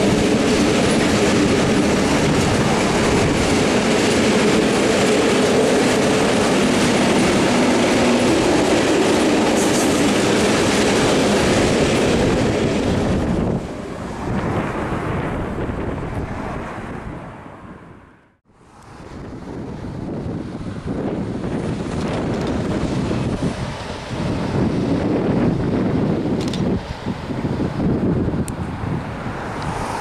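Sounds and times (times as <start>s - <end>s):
train wheels clattering over rails: 0.0s - 13.6s.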